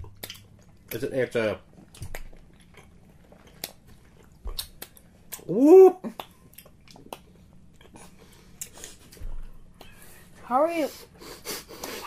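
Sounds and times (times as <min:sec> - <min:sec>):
chewing with wet smacks: 0:00.0 - 0:05.5, 0:06.1 - 0:10.0
person whooping: 0:05.4 - 0:06.2.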